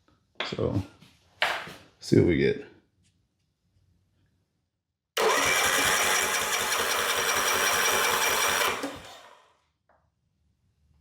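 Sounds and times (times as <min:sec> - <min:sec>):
electric starter cranking engine: 0:05.2 - 0:09.5.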